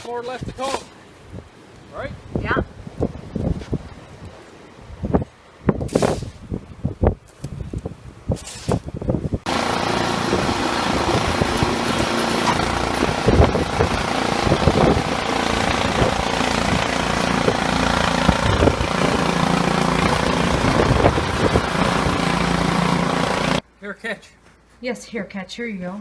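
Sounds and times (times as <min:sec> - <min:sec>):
small engine running: 0:09.5 - 0:23.6.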